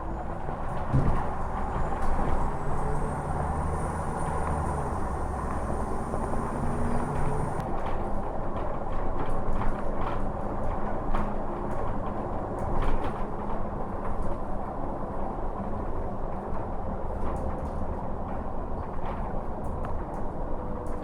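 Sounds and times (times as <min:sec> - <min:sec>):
bus engine hum: 0:00.0 - 0:07.6.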